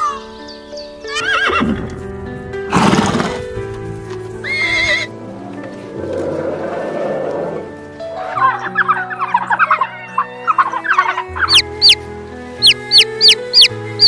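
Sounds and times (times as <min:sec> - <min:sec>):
background music: 0:00.0 - 0:14.0
horse whinnying: 0:01.1 - 0:01.8, 0:04.4 - 0:05.1.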